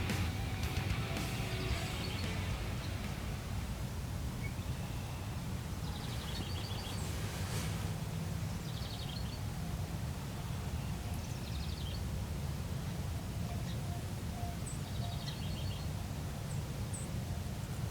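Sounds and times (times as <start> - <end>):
low background rumble: 0.0 - 6.0.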